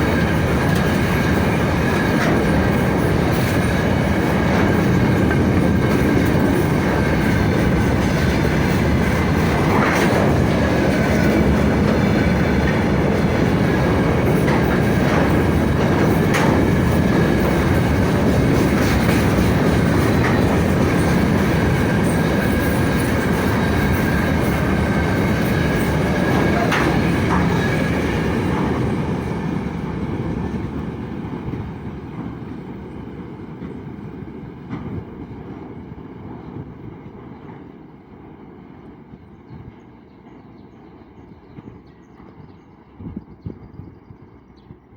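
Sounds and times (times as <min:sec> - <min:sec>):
freight wagons rumbling past: 0:00.0 - 0:33.0
wheels clacking over rail joints: 0:00.0 - 0:35.8.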